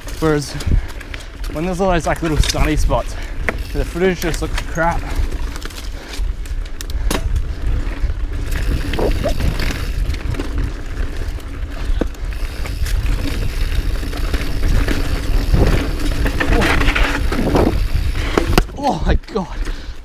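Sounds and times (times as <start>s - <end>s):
mountain bike rattling: 0.0s - 20.0s
wind buffeting microphone: 5.9s - 19.2s.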